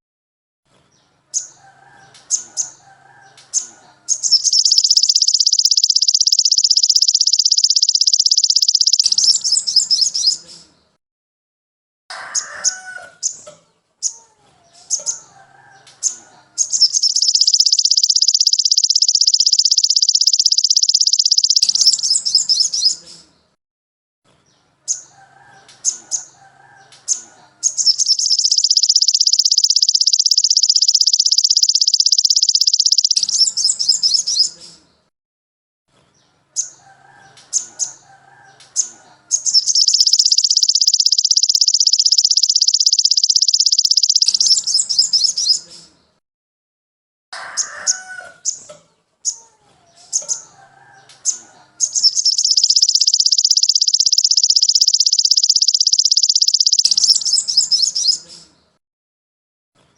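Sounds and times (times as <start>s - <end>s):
short sharp bird chirps: 2.2s - 10.8s, 14.8s - 23.3s, 27.1s - 34.8s, 38.6s - 46.0s, 50.0s - 58.6s
lower warbling bird calls: 3.6s - 10.5s, 16.0s - 23.0s, 27.1s - 34.6s, 38.8s - 45.7s, 51.3s - 58.3s
songbird high-pitched rapid trills: 4.1s - 10.4s, 16.0s - 23.0s, 27.1s - 34.6s, 38.8s - 45.6s, 51.3s - 58.2s.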